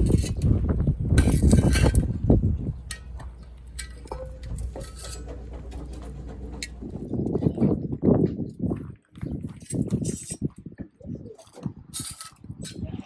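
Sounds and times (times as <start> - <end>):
rustling and clatter: 0.0 - 10.5
wind rumbling on microphone: 0.0 - 13.0.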